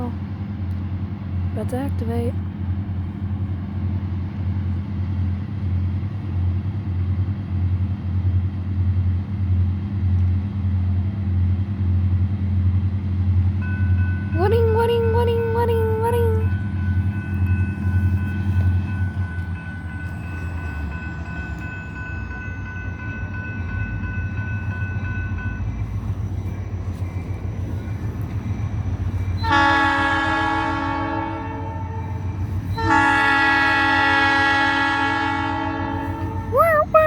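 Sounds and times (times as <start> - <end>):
train rumbling past: 0.0 - 37.0
locomotive horn blasts: 29.4 - 36.5.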